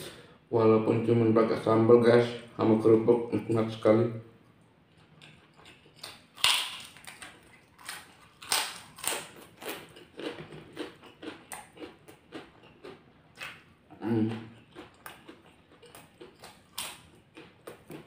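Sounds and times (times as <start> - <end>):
crunching crackers: 5.0 - 18.0.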